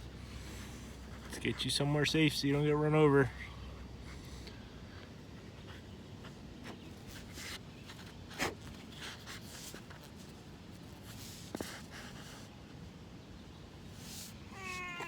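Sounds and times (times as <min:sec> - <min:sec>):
soft scratching and rustling: 0:00.1 - 0:03.4, 0:04.0 - 0:12.9, 0:13.9 - 0:15.0.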